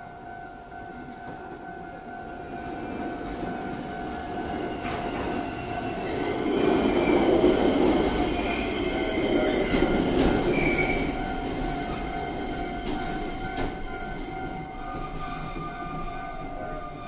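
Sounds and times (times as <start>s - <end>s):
electric train rumble: 0.0s - 17.0s
ringing warning tone: 8.2s - 17.0s
wheel or brake squeal: 8.4s - 17.0s.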